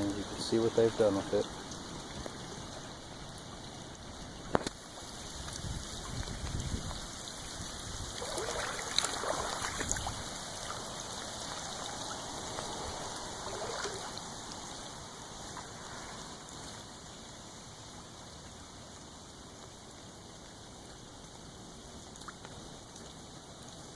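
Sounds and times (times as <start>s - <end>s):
water trickling in a ditch: 0.0s - 23.9s.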